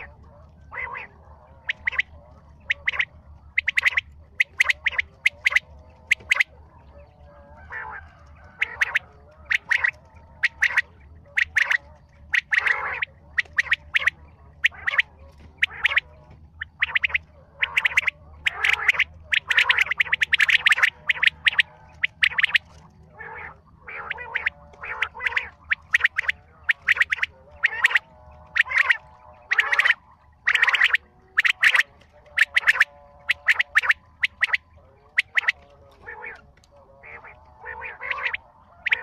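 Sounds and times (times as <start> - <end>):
faint low hum: 0.0 - 39.0
short sharp bird calls: 0.7 - 7.0.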